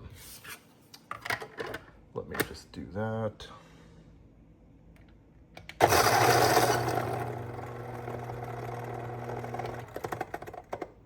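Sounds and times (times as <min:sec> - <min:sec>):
coffee grinder motor whir: 0:05.8 - 0:10.8.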